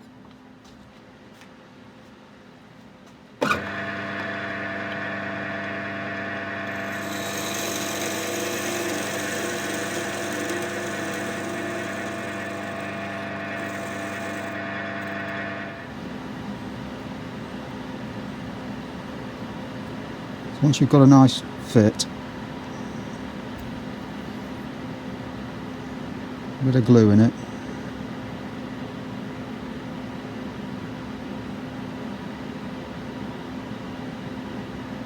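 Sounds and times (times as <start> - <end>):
lathe motor humming: 3.4 - 16.0
tool hissing on spinning wood: 6.4 - 15.8.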